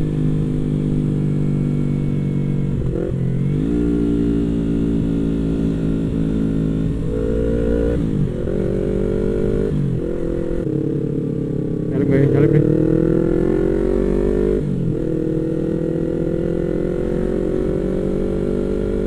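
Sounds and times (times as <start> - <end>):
wind rumble: 0.0 - 12.0
motorcycle engine running: 0.0 - 19.0.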